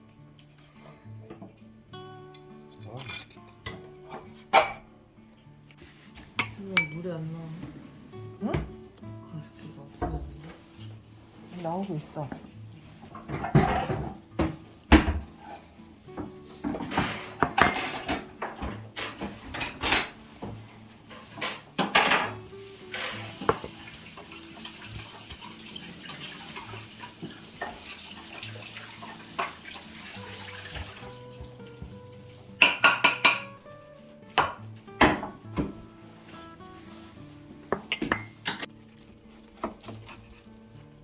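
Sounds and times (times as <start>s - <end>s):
dishes and cutlery clattering: 2.2s - 4.9s, 6.2s - 7.0s, 9.9s - 33.7s, 37.7s - 40.4s.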